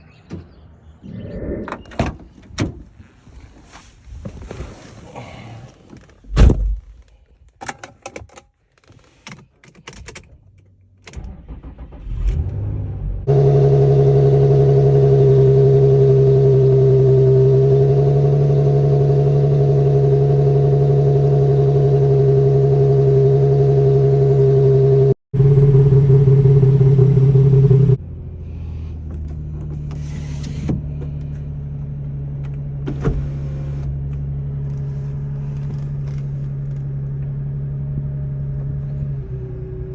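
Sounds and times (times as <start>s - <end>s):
car engine starting and idling: 10.9s - 39.9s.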